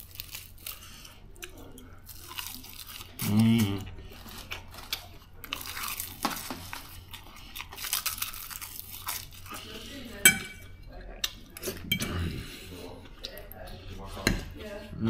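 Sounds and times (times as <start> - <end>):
wet open-mouthed chewing: 0.0 - 15.0
fork clinking on plate: 10.2 - 10.6.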